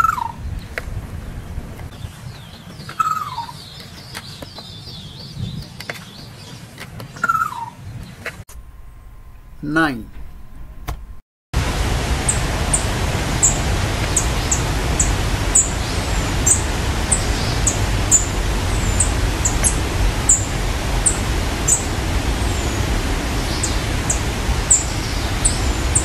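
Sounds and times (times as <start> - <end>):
small bird high thin calls: 7.2 - 7.8
loud rushing noise: 11.6 - 26.0.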